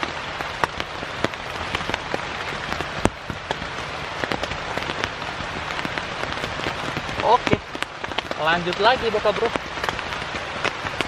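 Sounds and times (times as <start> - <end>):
heavy rain on a tent: 0.0 - 11.0.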